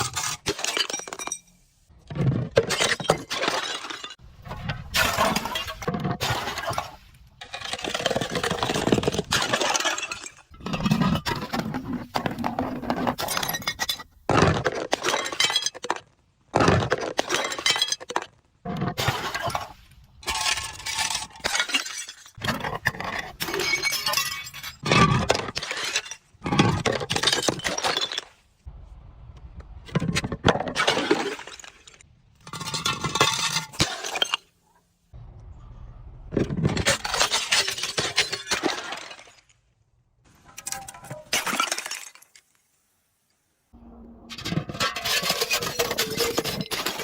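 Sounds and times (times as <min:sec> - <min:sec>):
glass bottles breaking: 0:00.0 - 0:01.6, 0:02.3 - 0:04.2, 0:13.0 - 0:16.0, 0:20.3 - 0:28.3, 0:30.7 - 0:34.5, 0:36.7 - 0:39.6, 0:40.6 - 0:42.4.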